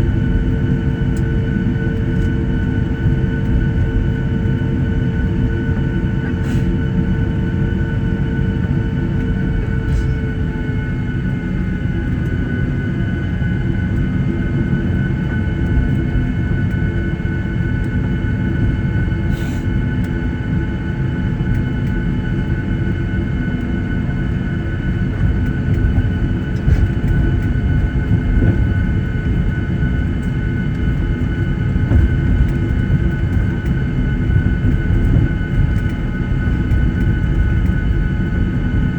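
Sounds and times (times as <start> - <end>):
jet engines whining: 0.0 - 38.9
low rumble of wheels and airframe: 9.2 - 10.8, 23.2 - 38.9.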